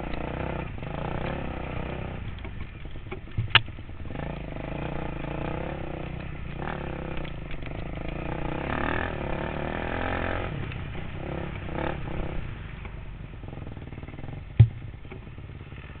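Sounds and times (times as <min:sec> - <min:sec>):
dirt bike engine revving: 0:00.0 - 0:02.9, 0:03.5 - 0:12.8.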